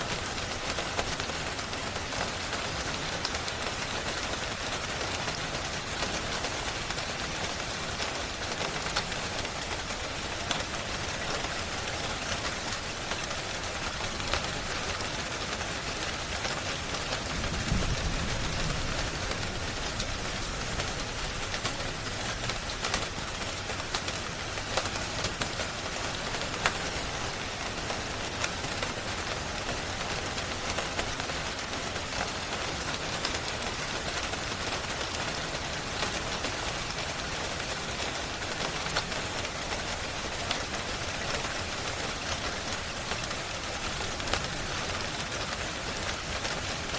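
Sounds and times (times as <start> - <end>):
rain hiss: 0.0 - 46.9
wood fire crackling: 7.4 - 29.0.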